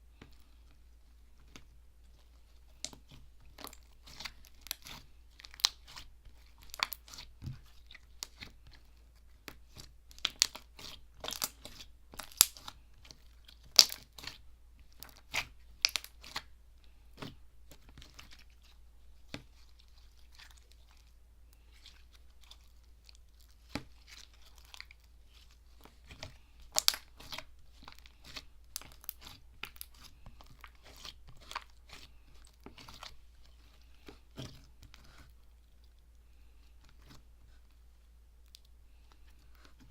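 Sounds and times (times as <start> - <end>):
slime crunchy clicks and crackles: 2.7 - 8.6, 9.5 - 16.5, 22.4 - 33.2.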